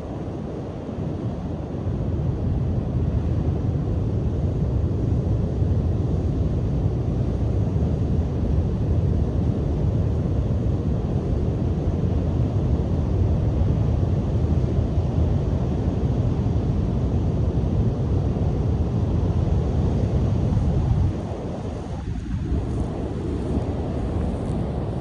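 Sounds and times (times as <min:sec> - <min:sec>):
wind on microphone: 0:00.0 - 0:25.0.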